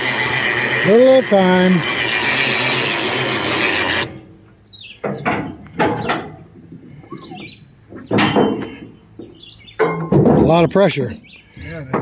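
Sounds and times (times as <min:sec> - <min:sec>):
electric winch running: 0:00.0 - 0:04.2
birds chirping: 0:00.9 - 0:12.0
knocks and clanks: 0:05.0 - 0:10.8.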